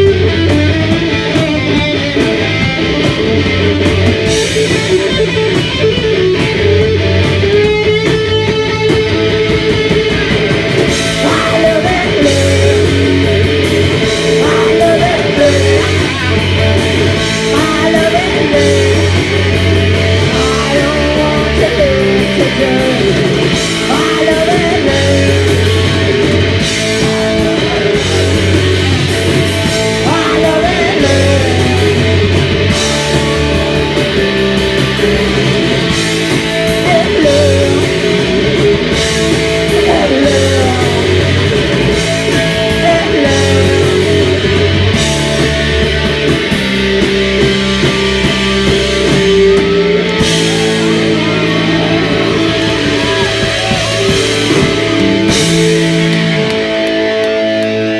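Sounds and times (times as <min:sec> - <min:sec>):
bass guitar: 0:00.0 - 0:57.9
distorted electric guitar: 0:00.0 - 0:57.9
drums: 0:00.0 - 0:57.9
person singing: 0:10.2 - 0:34.2, 0:35.9 - 0:45.8, 0:49.0 - 0:56.8.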